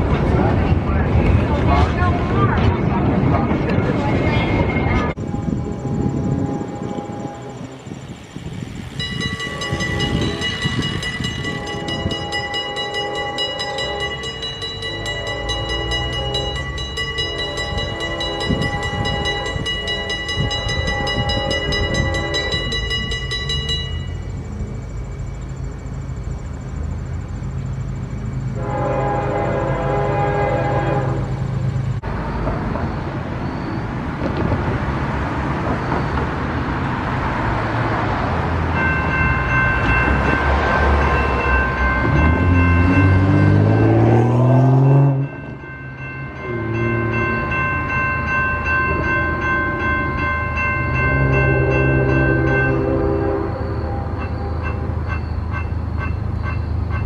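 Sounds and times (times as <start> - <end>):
passing train rumble: 0.0 - 57.0
railroad crossing bell ringing: 3.1 - 31.8, 38.4 - 57.0
locomotive horn: 5.2 - 8.0, 9.4 - 22.8, 28.6 - 31.4, 46.3 - 47.6, 48.9 - 55.2.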